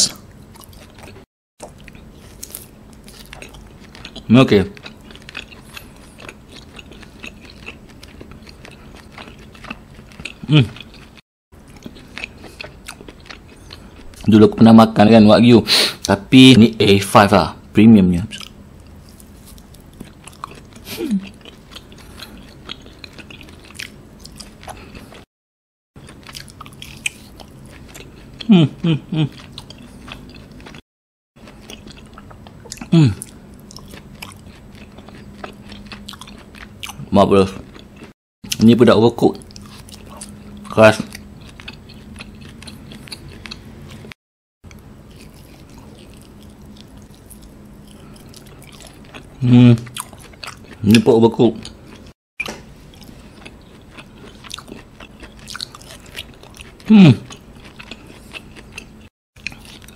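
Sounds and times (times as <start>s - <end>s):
wet chewing mouth sounds: 0.1s - 14.3s, 18.4s - 25.3s, 39.3s - 59.9s.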